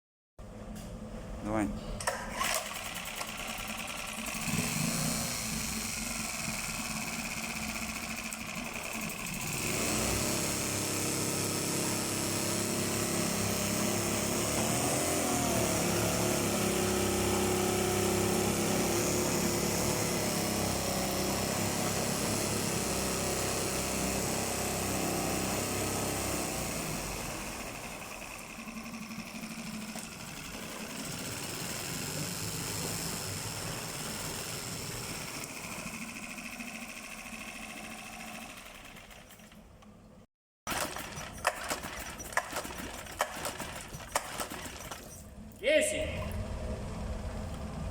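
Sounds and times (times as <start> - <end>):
outboard motor running: 2.6 - 39.5.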